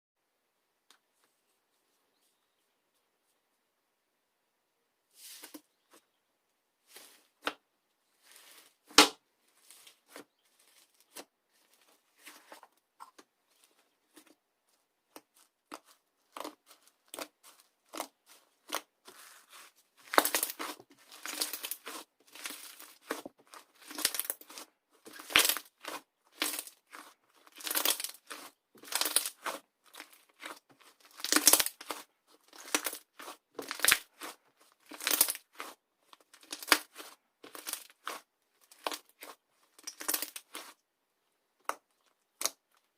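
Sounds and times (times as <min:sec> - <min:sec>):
slime crust crackling: 0:15.1 - 0:40.8.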